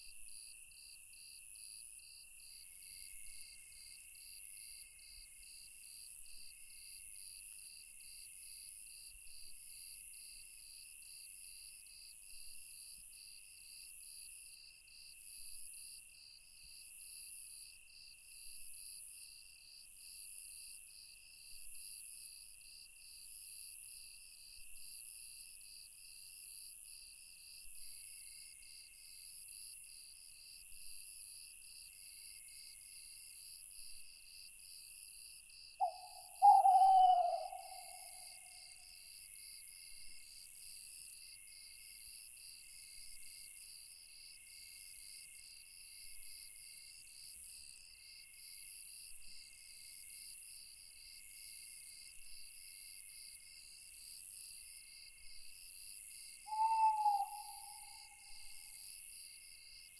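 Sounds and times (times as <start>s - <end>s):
steady high insect trill: 32.3s - 53.7s, 54.5s - 59.9s
crickets chirping: 35.5s - 43.2s, 54.7s - 59.9s.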